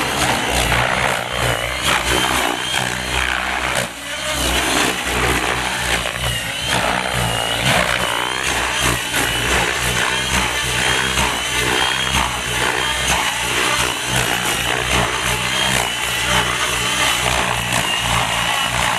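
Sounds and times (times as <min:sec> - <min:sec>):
high motor whine: 0:00.0 - 0:18.9
model helicopter rotor and motor: 0:00.0 - 0:18.9.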